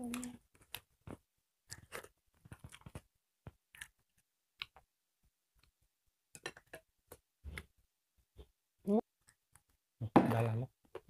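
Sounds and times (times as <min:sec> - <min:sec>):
people chewing food: 0:00.0 - 0:05.9.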